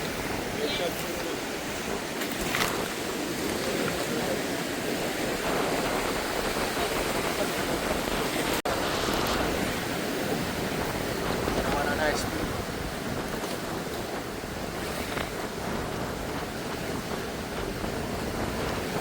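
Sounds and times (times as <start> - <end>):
sea waves rushing: 0.0 - 19.0
wind on microphone: 0.0 - 19.0.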